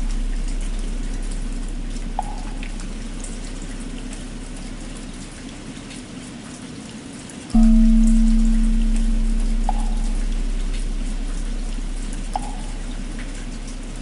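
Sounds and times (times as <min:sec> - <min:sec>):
large bell humming: 0:00.0 - 0:04.8, 0:07.6 - 0:14.0
steady rain: 0:00.0 - 0:14.0.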